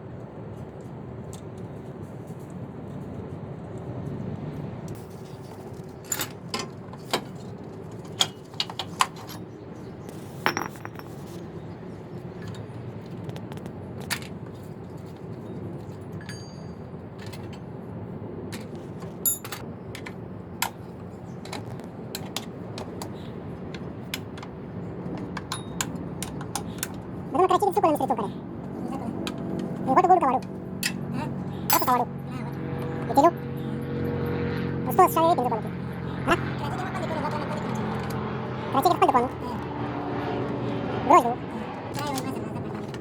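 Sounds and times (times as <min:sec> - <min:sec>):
low background hum: 0:00.0 - 0:43.0
metal tools clinking: 0:10.1 - 0:11.4, 0:15.9 - 0:17.6, 0:19.2 - 0:19.6, 0:31.7 - 0:32.1.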